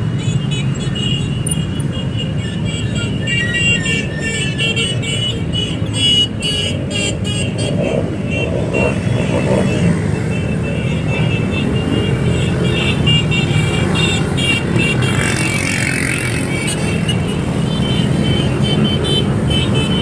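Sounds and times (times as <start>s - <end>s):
motorcycle engines running: 6.5s - 20.0s.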